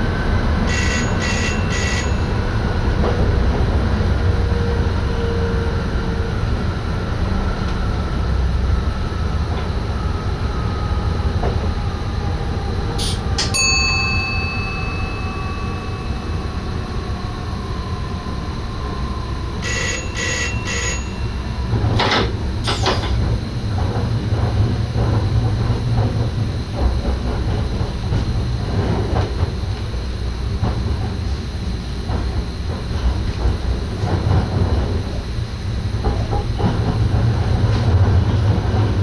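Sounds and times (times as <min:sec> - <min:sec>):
electric train rumble: 0:00.0 - 0:39.0
short beeps: 0:00.7 - 0:02.3, 0:19.6 - 0:21.5.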